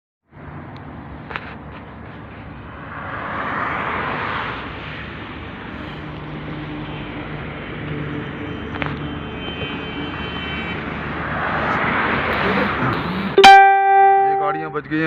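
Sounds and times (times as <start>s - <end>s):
vehicle passing close: 2.6s - 6.5s, 11.0s - 13.4s.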